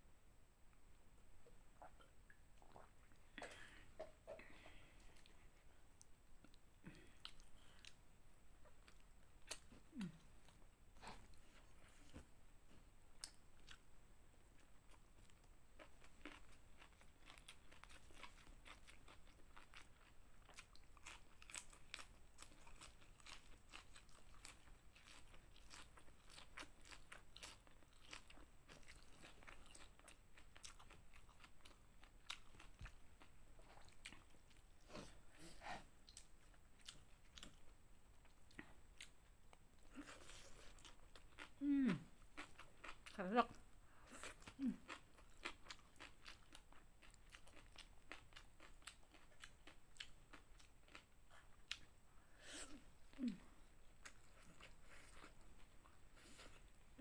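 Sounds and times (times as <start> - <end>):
crunching and chewing greens: 14.5 - 35.2, 36.0 - 52.0.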